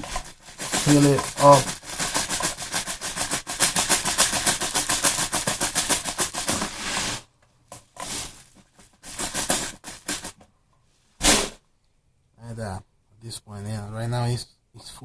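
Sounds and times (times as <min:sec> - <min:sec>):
plastic bbs rattling into loader: 0:00.0 - 0:06.8.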